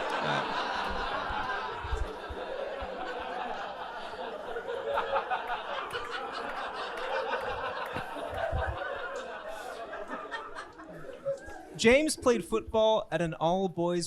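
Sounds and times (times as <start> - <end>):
audience laughing: 0.0 - 11.8
scattered claps: 4.9 - 9.3.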